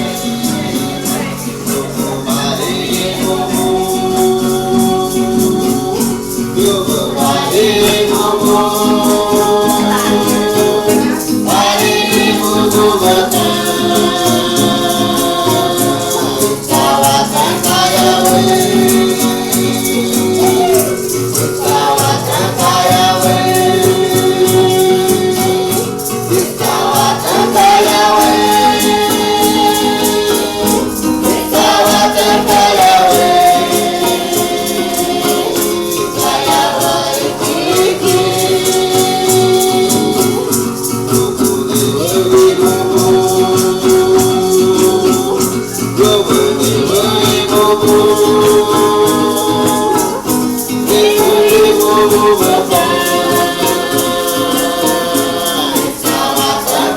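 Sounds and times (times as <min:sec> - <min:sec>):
rattles shaken in a beat: 0:00.0 - 0:56.9
group of voices chanting: 0:06.6 - 0:40.7, 0:46.8 - 0:56.9.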